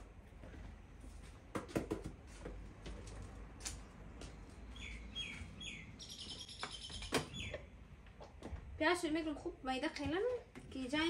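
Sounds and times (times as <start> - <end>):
bird chirping: 4.6 - 7.8.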